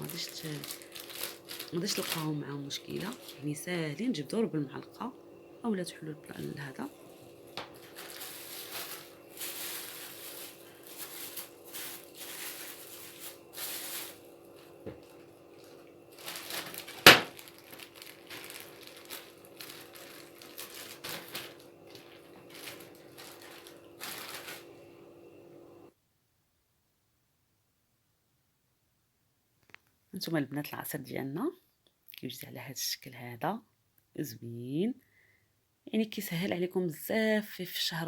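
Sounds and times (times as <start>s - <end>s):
plastic bag crinkling: 0.0s - 4.9s, 6.3s - 25.8s
faint steady hum: 0.0s - 38.0s.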